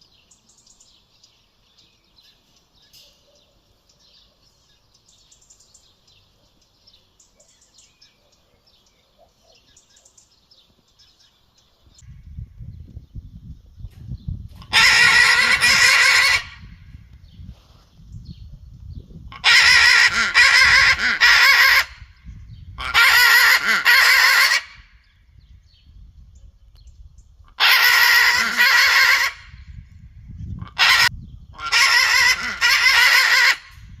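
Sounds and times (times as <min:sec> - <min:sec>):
parrot screeching: 0:14.7 - 0:16.7, 0:19.3 - 0:22.0, 0:22.8 - 0:24.8, 0:27.6 - 0:29.6, 0:30.7 - 0:33.8.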